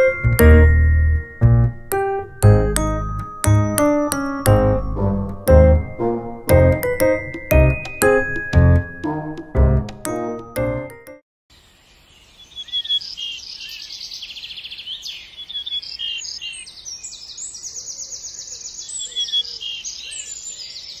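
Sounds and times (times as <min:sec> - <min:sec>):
small birds singing: 0:11.5 - 0:21.0.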